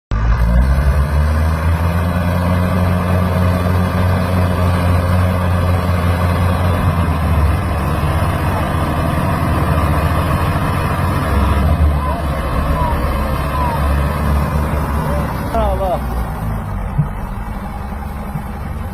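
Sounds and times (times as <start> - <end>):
tractor diesel engine running: 0.1 - 18.9.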